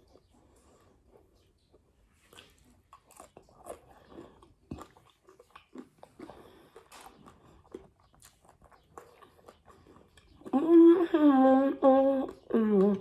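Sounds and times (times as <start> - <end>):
crisp food crunches: 2.2 - 10.5.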